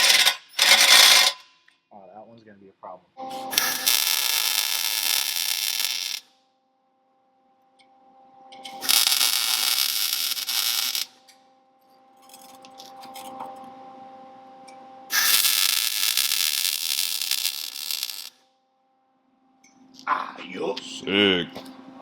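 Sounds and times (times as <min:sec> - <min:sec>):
welding arc crackling: 0:00.0 - 0:01.4, 0:03.4 - 0:06.3, 0:08.6 - 0:11.2, 0:15.1 - 0:18.4.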